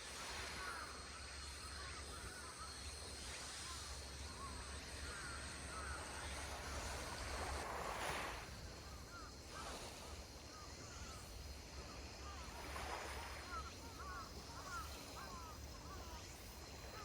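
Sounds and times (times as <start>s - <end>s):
sea waves washing on shore: 6.0s - 10.3s.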